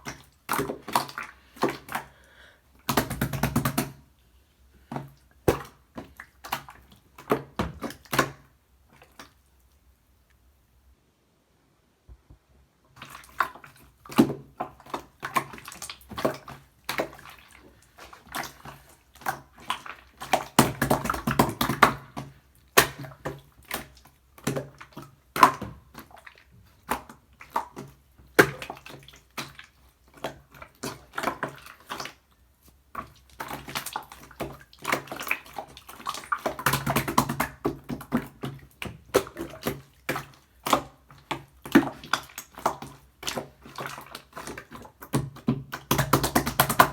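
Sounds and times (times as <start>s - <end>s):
slime squelching and popping: 32.9s - 46.9s.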